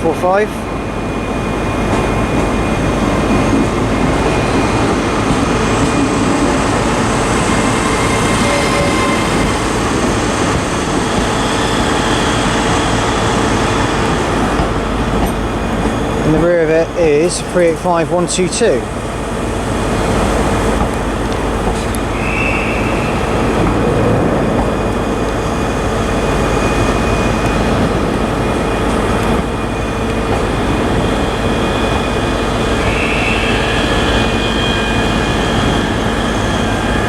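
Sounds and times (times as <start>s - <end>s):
electric train hum and whine: 0.0s - 37.0s.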